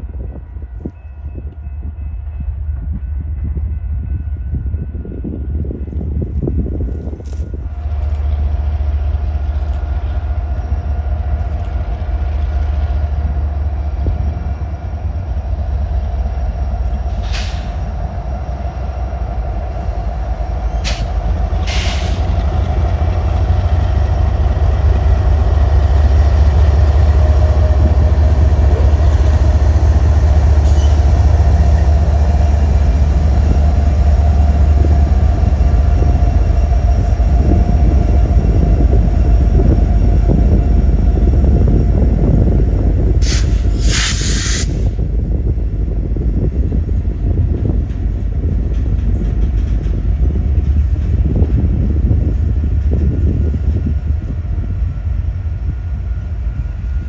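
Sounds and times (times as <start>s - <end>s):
freight train rumbling past: 0.0s - 57.0s
sharp train clanks: 16.6s - 57.0s.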